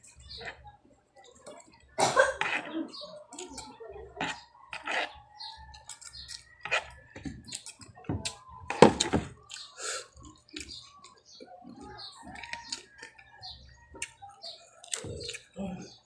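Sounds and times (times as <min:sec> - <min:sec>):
wet chewing and lip smacking: 0:02.4 - 0:08.5, 0:09.4 - 0:15.6.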